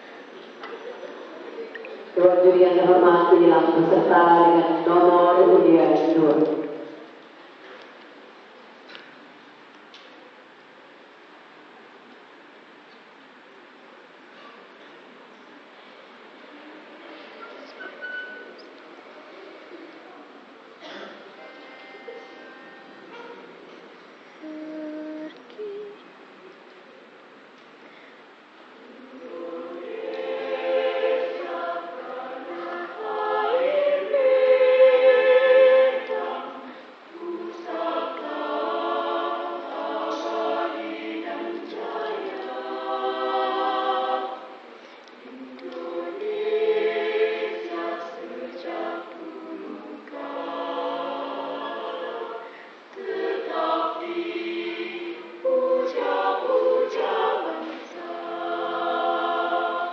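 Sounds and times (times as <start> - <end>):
mixed choir singing: 2.1 - 7.2, 28.8 - 59.9.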